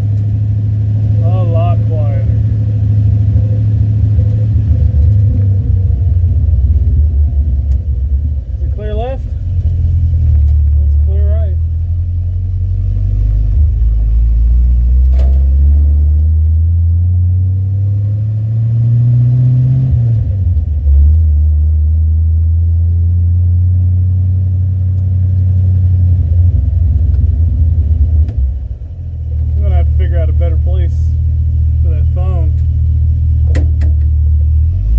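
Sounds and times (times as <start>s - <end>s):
car engine droning: 0.0s - 34.9s.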